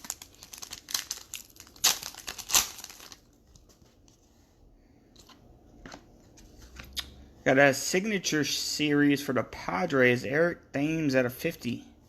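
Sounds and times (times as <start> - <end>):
foil wrapper crinkling and tearing: 0.0 - 3.8.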